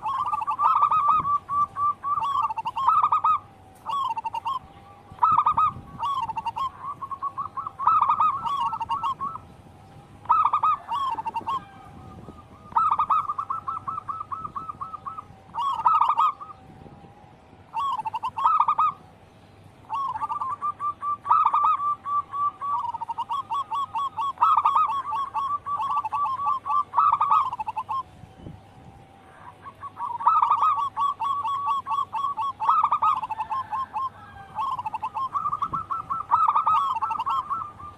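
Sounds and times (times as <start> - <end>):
doves cooing: 0.0 - 37.9.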